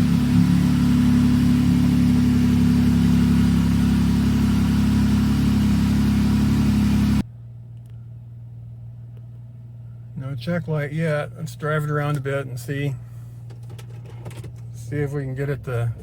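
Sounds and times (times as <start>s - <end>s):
car engine idling: 0.0s - 16.0s
quiet steady hum: 7.2s - 16.0s.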